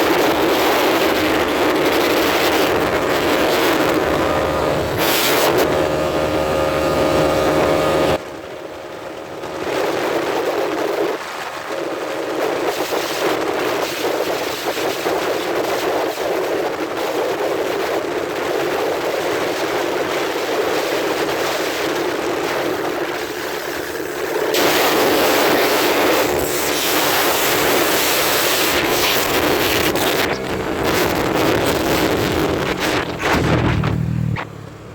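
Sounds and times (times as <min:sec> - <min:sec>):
motorcycle engine running: 0:00.0 - 0:14.5, 0:15.7 - 0:34.9
wind rushing over microphone: 0:00.0 - 0:34.6.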